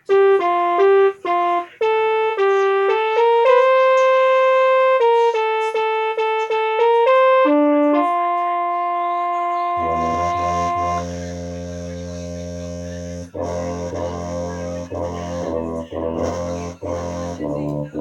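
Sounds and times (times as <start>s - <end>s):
electronic keyboard melody: 0.0s - 18.0s.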